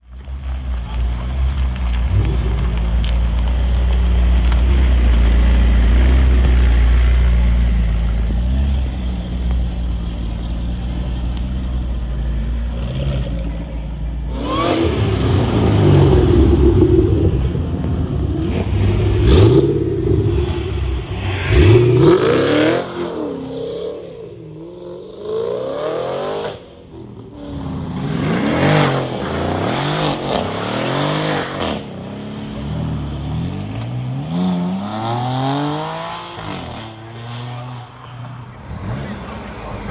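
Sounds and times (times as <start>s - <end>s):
sports car engines accelerating: 0.1s - 39.9s
sharp cracks: 0.3s - 8.2s.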